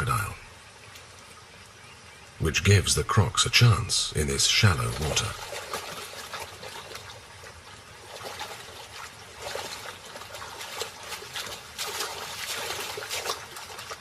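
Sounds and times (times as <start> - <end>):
animals splashing through shallow water: 4.2 - 14.0.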